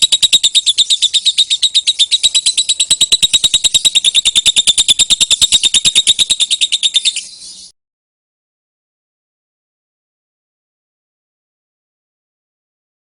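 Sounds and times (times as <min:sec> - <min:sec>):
lovebird shrill chatter: 0:00.0 - 0:07.7.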